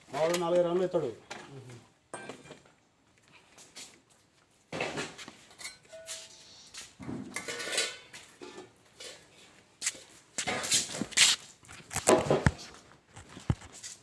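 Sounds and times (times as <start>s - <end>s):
thin tone: 5.6s - 6.8s.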